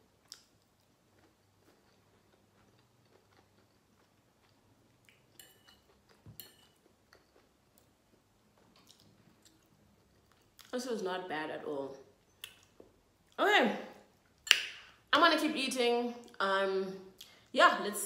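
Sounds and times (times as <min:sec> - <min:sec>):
faint chewing: 0:00.2 - 0:10.8.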